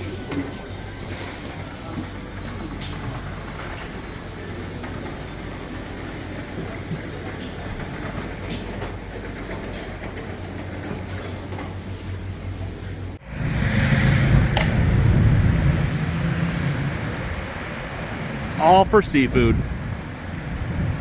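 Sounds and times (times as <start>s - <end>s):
low rumbling noise: 13.2s - 21.0s.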